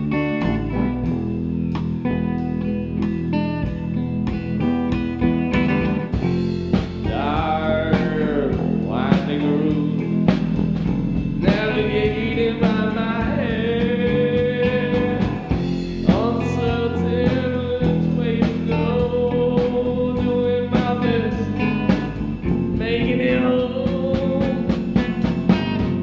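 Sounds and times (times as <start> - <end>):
bass guitar: 0.0 - 26.0
guitar: 0.0 - 26.0
drum beat: 3.7 - 26.0
person singing sliding phrases: 7.0 - 10.6, 11.4 - 22.1.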